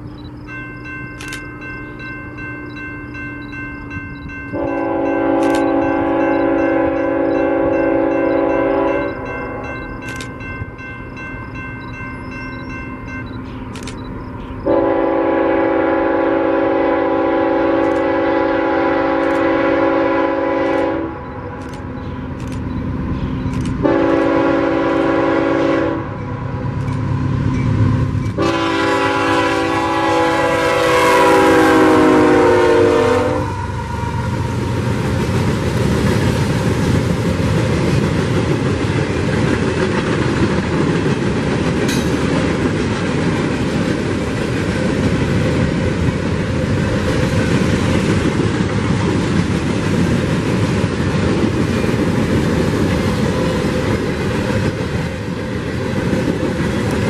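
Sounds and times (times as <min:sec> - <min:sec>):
freight cars rumbling on rails: 0:00.0 - 0:57.0
locomotive horn blasts: 0:04.5 - 0:09.7, 0:14.6 - 0:21.3, 0:23.8 - 0:26.3, 0:28.4 - 0:34.3.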